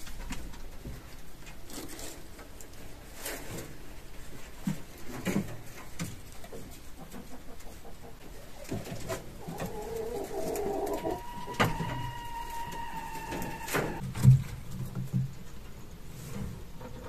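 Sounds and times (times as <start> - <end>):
bird calling: 9.4 - 14.0.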